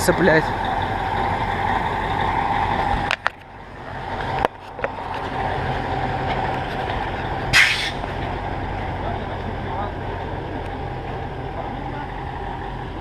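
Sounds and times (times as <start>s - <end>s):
truck diesel engine running: 0.0s - 13.0s
short hiss: 7.5s - 8.0s.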